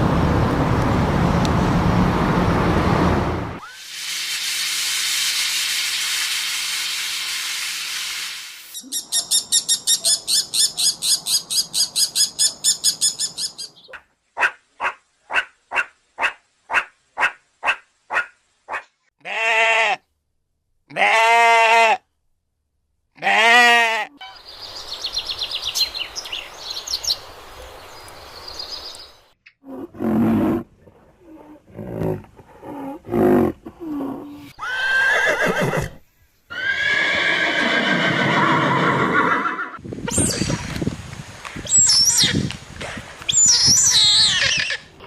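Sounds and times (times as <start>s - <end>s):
farm animal calls: 43.4s - 45.0s.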